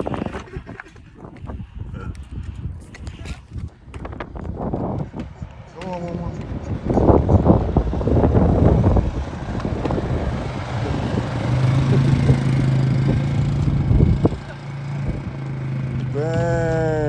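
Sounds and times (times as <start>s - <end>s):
dirt bike engine idling: 4.1s - 17.0s.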